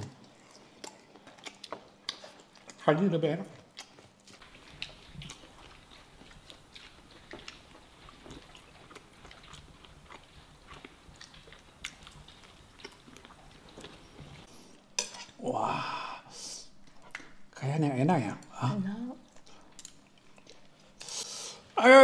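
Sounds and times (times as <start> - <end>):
chewing and crunching: 0.0 - 14.5, 19.2 - 21.2.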